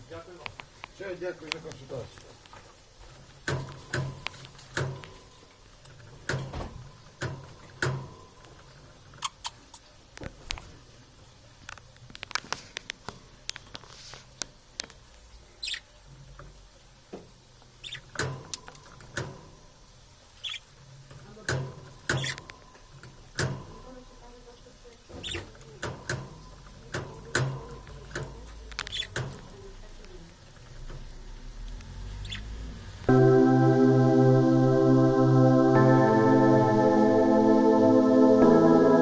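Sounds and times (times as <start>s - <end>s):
parrots chirping: 15.6s - 15.9s, 17.8s - 18.2s, 20.4s - 20.8s, 22.1s - 22.5s, 25.2s - 25.5s, 28.8s - 29.2s, 32.2s - 32.6s.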